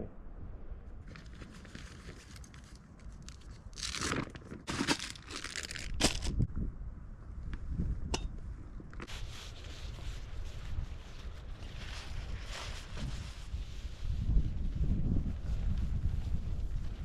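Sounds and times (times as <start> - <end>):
material rustling and crinkling: 1.0 - 6.4
wind rumble on microphone: 5.7 - 17.0.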